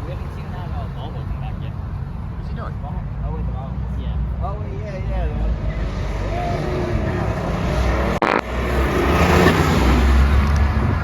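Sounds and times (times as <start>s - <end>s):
car engine accelerating: 5.1s - 11.0s.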